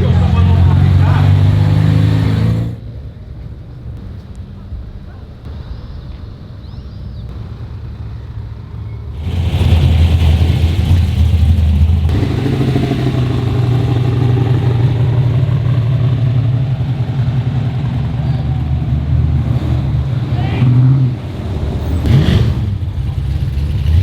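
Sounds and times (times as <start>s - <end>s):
car engine running: 9.2s - 20.1s.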